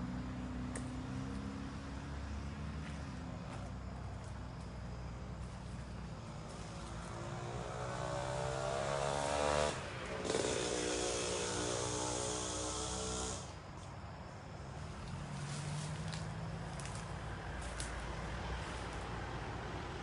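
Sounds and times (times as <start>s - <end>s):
vehicle engine revving: 6.0s - 13.6s.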